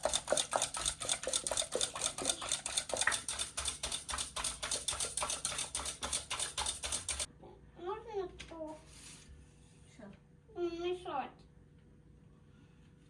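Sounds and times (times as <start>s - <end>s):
whisk clicking against bowl: 0.0s - 7.3s.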